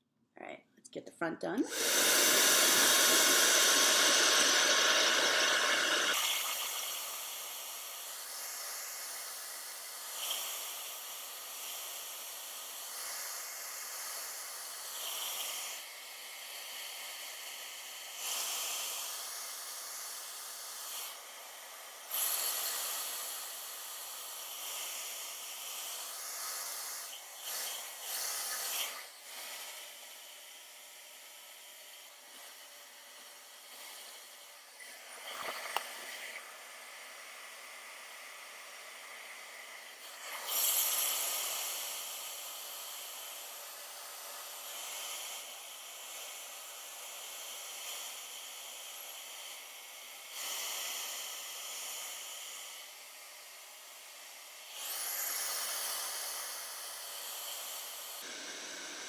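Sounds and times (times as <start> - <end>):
blow dryer blowing air: 1.6 - 8.6, 54.7 - 59.0.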